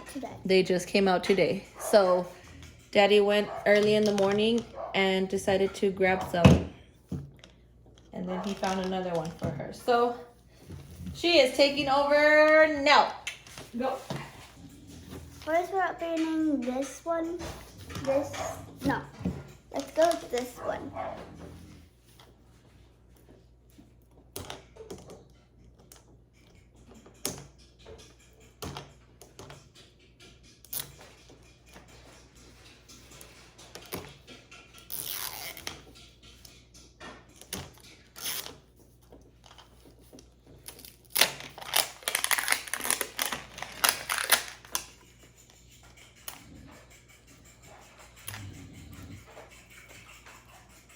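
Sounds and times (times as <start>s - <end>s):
plastic wrapping tearing and crinkling: 41.1s - 44.9s.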